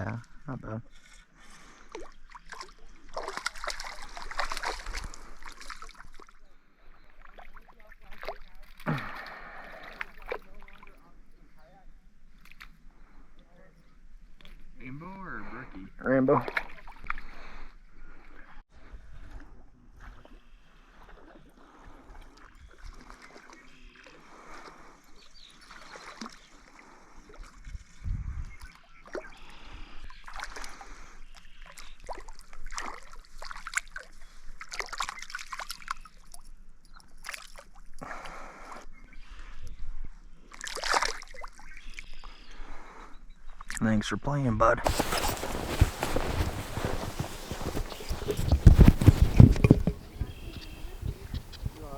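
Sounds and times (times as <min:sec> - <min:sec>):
water sloshing and splashing: 0:01.9 - 0:06.2, 0:44.9 - 0:51.9.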